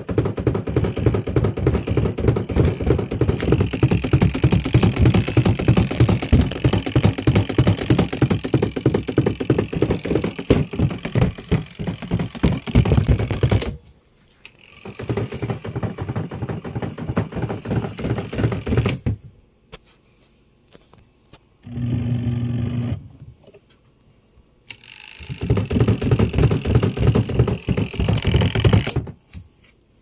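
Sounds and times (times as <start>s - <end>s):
washing machine rattling and knocking: 0.0s - 13.8s, 14.8s - 19.2s, 25.3s - 29.2s.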